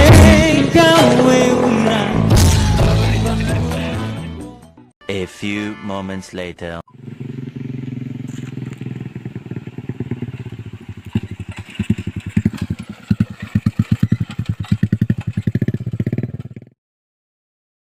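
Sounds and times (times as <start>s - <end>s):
motorcycle engine running: 6.9s - 16.8s.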